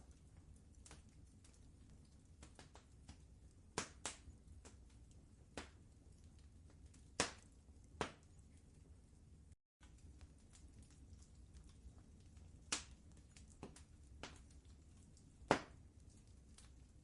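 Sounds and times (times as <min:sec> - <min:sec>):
low steady rumble: 0:00.0 - 0:17.0
wood fire crackling: 0:00.0 - 0:17.0
sharp pops of fire: 0:02.3 - 0:05.9, 0:06.7 - 0:08.3, 0:12.6 - 0:17.0.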